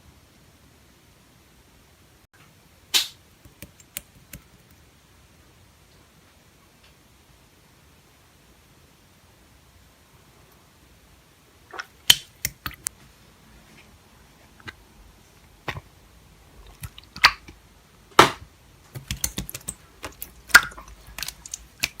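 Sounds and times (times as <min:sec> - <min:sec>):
slime popping and clicking: 0:11.7 - 0:12.9, 0:18.9 - 0:22.0.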